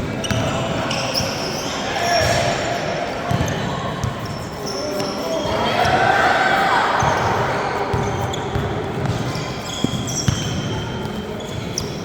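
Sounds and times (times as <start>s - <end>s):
murmur of crowd voices: 0.0s - 12.0s
sneaker squeaks: 0.0s - 12.0s
basketball bouncing on court: 0.1s - 0.9s, 2.1s - 2.6s, 3.3s - 4.3s, 7.9s - 12.0s.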